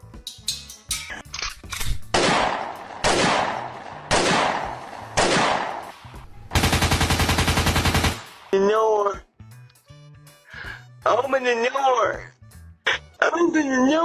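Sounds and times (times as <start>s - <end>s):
single gunshot bangs: 2.2s - 6.1s
automatic gunfire burst: 6.6s - 8.5s.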